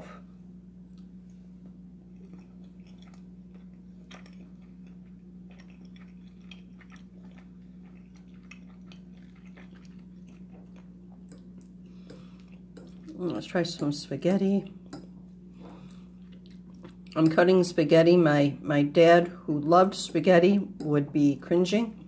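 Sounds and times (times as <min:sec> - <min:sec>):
steady low hum: 0:00.0 - 0:22.0
person chewing food: 0:00.8 - 0:13.9, 0:14.6 - 0:17.4.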